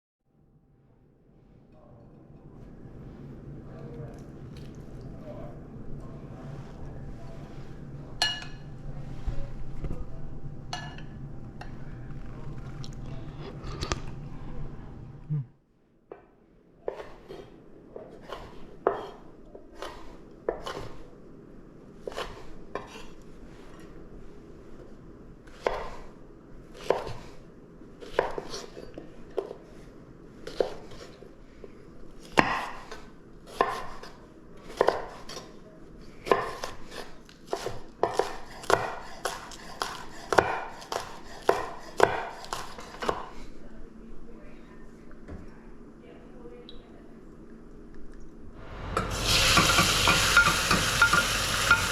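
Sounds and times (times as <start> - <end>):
knife chopping on cutting board: 26.8 - 27.3, 32.4 - 35.4, 36.2 - 43.3.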